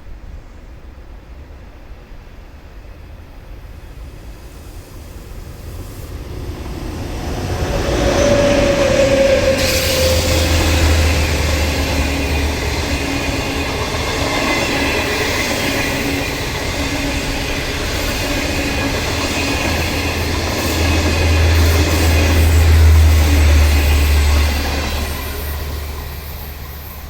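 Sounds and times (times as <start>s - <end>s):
deep train rumble: 0.0s - 27.0s
train wheels rushing on rail: 0.0s - 27.0s.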